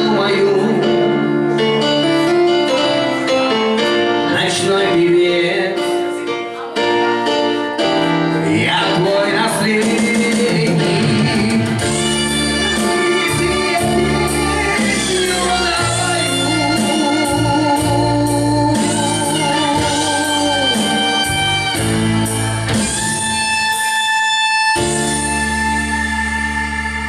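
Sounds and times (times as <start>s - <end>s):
held melody line: 0.0s - 27.0s
rock band playing: 0.0s - 27.0s
drum beat: 9.8s - 18.0s.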